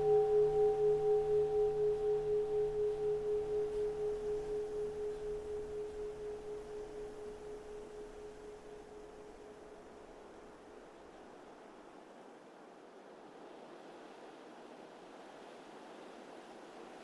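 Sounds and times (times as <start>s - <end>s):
bowl bell ringing: 0.0s - 9.5s.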